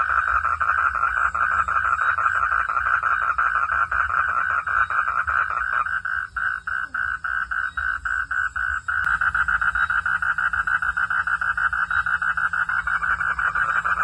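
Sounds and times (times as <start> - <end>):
frogs calling: 0.0 - 14.0.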